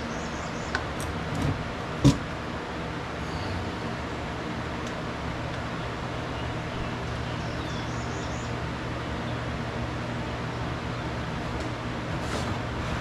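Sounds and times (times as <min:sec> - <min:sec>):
low mechanical hum: 0:00.0 - 0:13.0
high bird chirps: 0:06.3 - 0:08.6.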